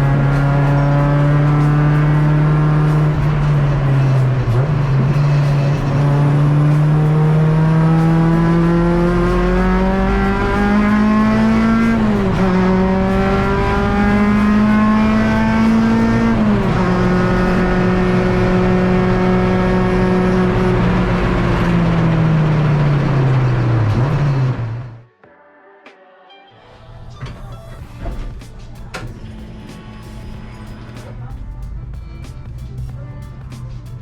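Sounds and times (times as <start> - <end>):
race car engine accelerating: 0.0 - 25.0.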